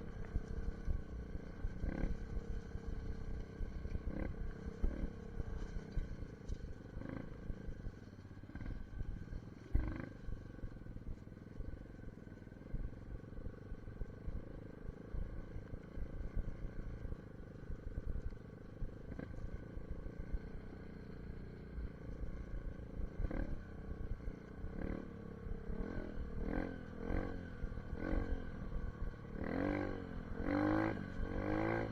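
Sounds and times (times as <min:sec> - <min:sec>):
dirt bike engine running: 0:00.0 - 0:31.9.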